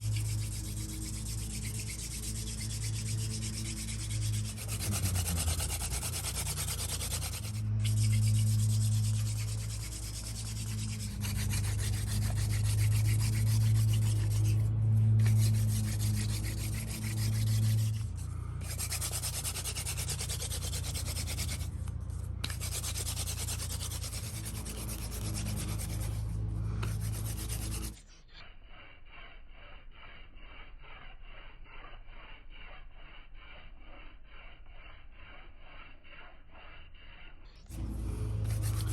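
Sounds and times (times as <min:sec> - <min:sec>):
steady low hum: 0:00.0 - 0:28.2, 0:37.6 - 0:38.9
hand drill rubbing on wood: 0:00.0 - 0:38.9.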